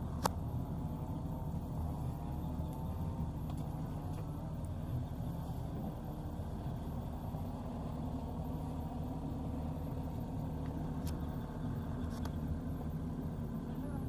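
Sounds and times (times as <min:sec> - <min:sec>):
diesel engine humming: 0:00.0 - 0:14.0.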